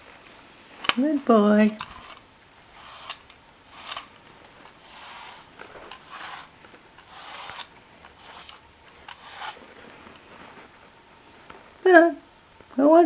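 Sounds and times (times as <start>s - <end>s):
pet brush rasping through fur: 1.7s - 10.7s.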